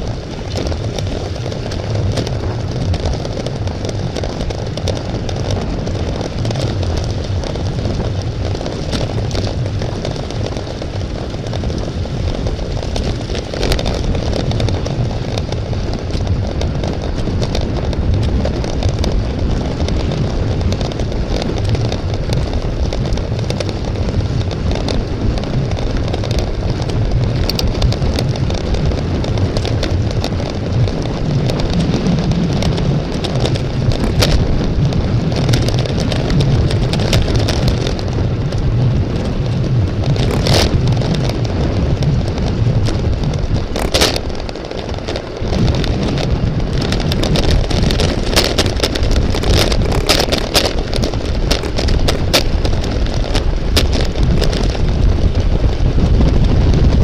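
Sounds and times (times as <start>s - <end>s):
bicycle clicks and rattles: 0.0s - 57.0s
wind buffeting microphone: 0.0s - 57.0s.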